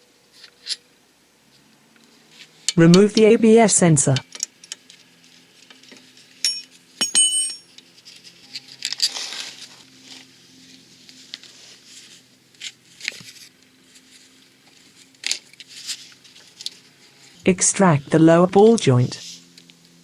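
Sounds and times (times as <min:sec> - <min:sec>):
metal tools clinking: 0:06.4 - 0:07.9
scraping rustle: 0:08.0 - 0:17.4.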